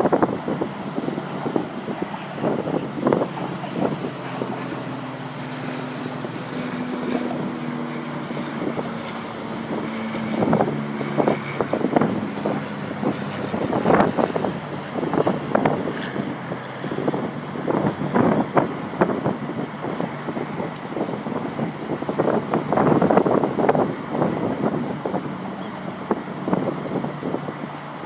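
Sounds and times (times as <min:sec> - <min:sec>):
engine running: 0:00.0 - 0:28.0
wind buffeting microphone: 0:00.0 - 0:28.0.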